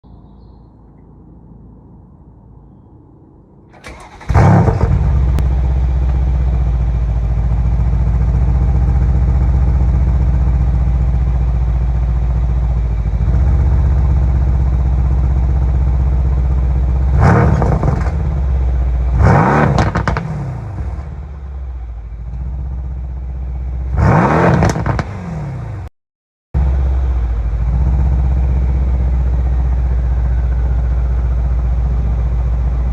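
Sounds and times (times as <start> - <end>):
engine cranking and starting: 3.7 - 5.4
car engine idling: 3.7 - 25.2, 26.6 - 32.9
engine throttle blips: 3.7 - 25.9.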